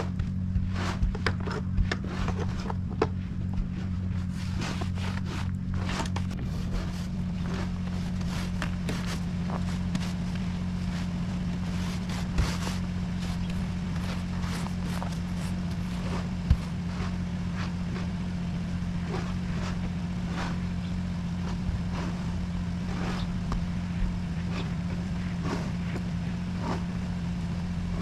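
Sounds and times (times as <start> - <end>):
crunches and scrapes in snow: 0.0 - 28.0
low engine hum: 0.0 - 28.0.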